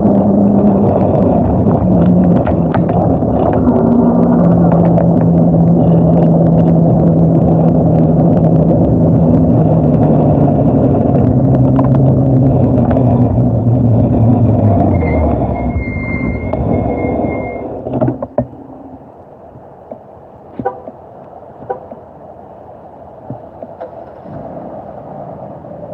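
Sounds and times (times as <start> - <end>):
low hum falling in pitch: 0.0 - 19.1
vehicle road rumble: 0.0 - 25.9.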